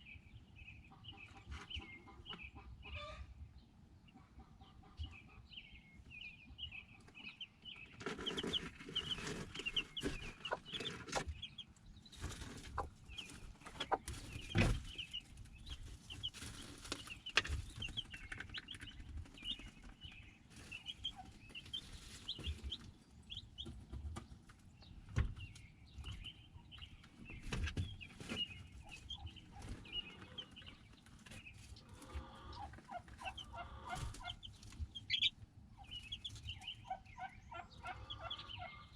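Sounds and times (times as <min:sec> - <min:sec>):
chickens clucking: 0:00.7 - 0:38.9.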